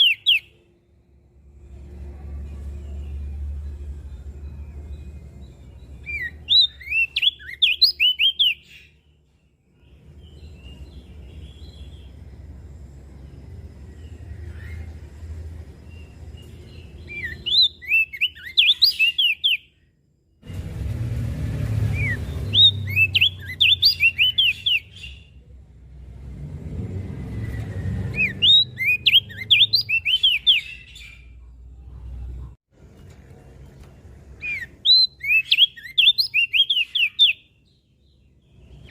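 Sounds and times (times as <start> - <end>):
bird twittering chirps: 0.0 - 0.7, 2.8 - 19.9, 21.8 - 25.4, 27.4 - 31.4, 34.4 - 38.9.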